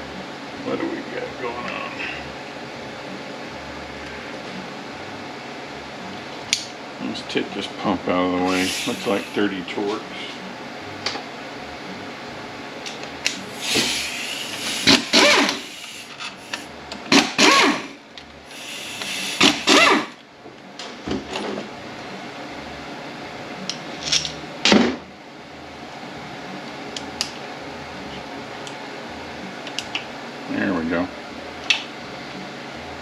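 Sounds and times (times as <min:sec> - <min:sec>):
tools and metal parts clinking: 0:23.9 - 0:24.4.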